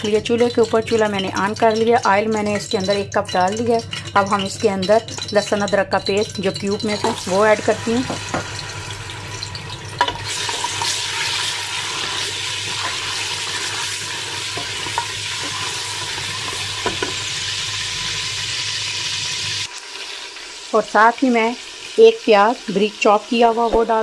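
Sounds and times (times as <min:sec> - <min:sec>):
spatula tapping pan: 0:00.0 - 0:08.6, 0:10.0 - 0:17.3
paste sizzling in hot oil: 0:06.3 - 0:24.0.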